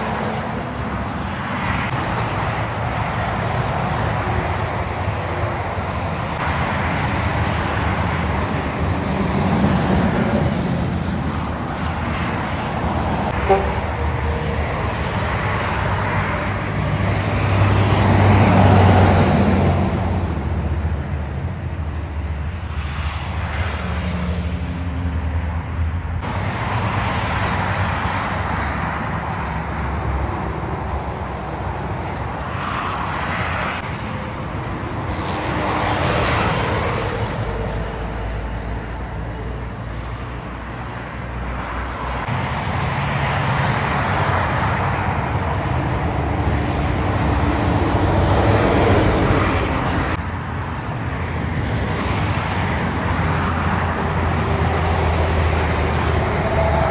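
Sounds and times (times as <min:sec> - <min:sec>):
trucks passing on road: 0:00.0 - 0:56.9.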